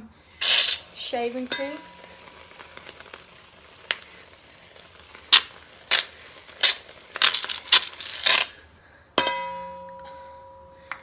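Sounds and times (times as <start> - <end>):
aerosol can spurting foam: 0.3 - 8.7.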